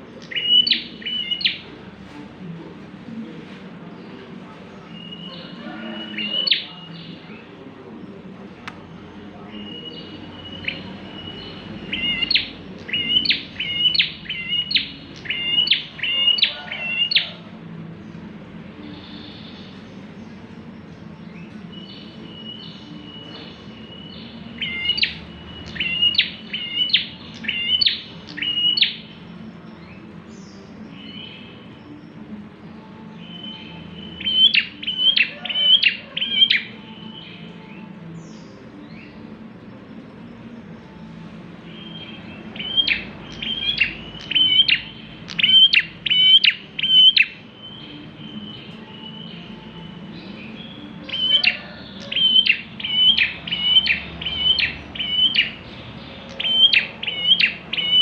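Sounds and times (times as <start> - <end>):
small bird singing sharp notes: 0.1 - 1.6, 8.6 - 17.3, 41.7 - 58.0.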